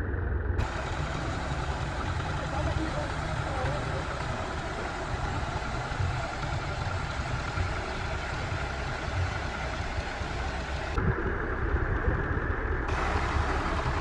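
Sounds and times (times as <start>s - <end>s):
engine idling low rumble: 0.0s - 14.0s
high hiss: 0.6s - 11.0s.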